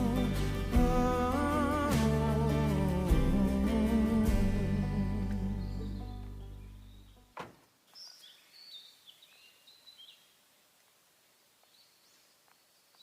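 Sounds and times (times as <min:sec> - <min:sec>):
song playing: 0:00.0 - 0:06.8
outdoor hiss: 0:07.3 - 0:13.0
faint high bird chirps: 0:07.9 - 0:10.4.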